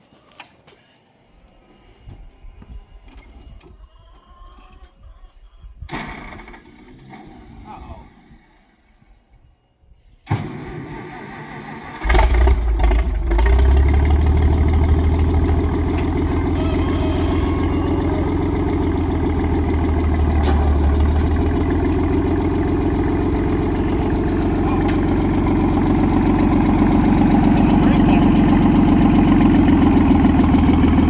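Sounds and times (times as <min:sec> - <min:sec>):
tractor engine starting and running: 0:05.9 - 0:09.1, 0:10.2 - 0:31.0.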